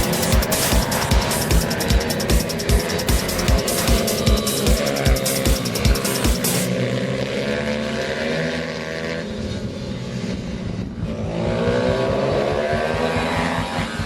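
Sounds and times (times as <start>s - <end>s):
pit bike engines revving: 0.0s - 14.0s.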